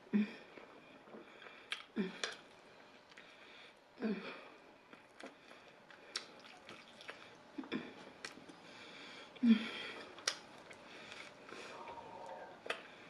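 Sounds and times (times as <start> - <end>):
person chewing: 1.0 - 3.3, 4.9 - 7.4, 8.0 - 8.6, 9.9 - 12.9.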